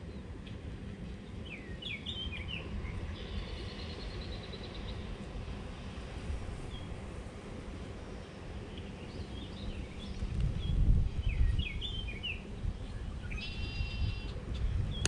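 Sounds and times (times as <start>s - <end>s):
small birds chirping: 1.2s - 5.2s, 8.1s - 15.0s.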